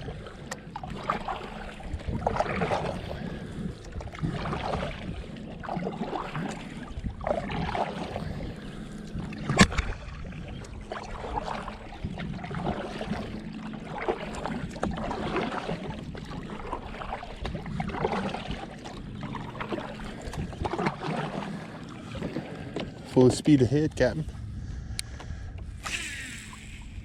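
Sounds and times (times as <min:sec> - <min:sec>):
kayak swishing through water: 0:00.0 - 0:27.0.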